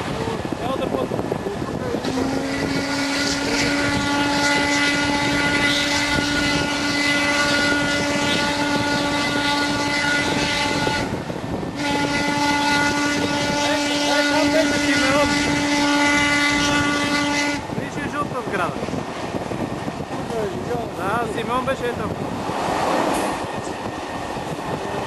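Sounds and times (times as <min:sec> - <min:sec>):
running train noise: 0:00.0 - 0:25.0
steam locomotive whistle: 0:02.0 - 0:11.1, 0:11.8 - 0:17.6.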